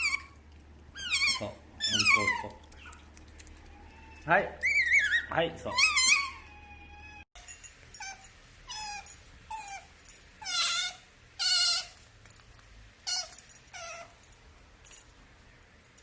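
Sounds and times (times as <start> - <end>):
otter squeaking: 0.0 - 7.3.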